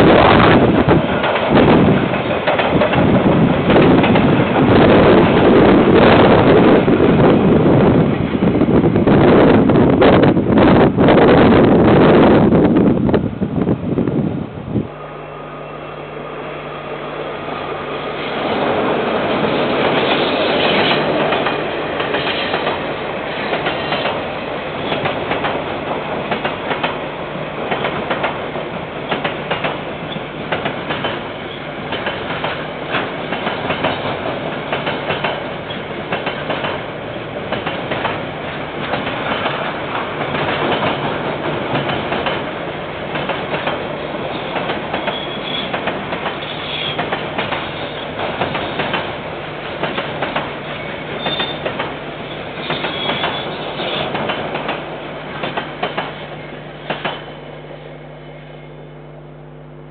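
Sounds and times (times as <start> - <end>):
train wheels clicking over rail joints: 0.1 - 7.5, 18.1 - 57.5.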